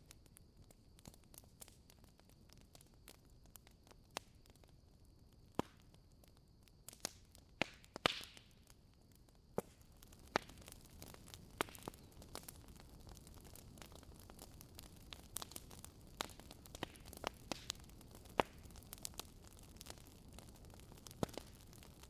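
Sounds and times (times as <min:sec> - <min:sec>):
wood fire popping and crackling: 0:00.0 - 0:22.0
fire hissing: 0:09.6 - 0:22.0.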